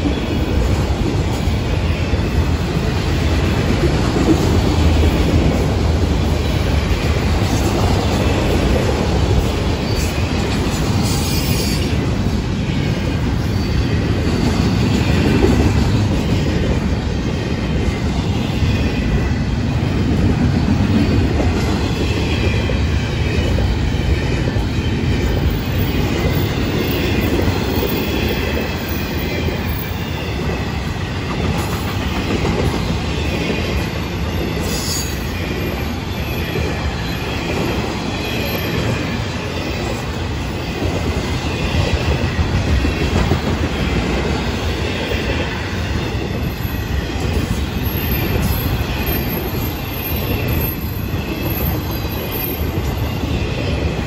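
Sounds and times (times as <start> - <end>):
train wheels rumbling on rail: 0.0 - 54.0
faint high wheel squeal: 9.7 - 12.1, 45.0 - 54.0.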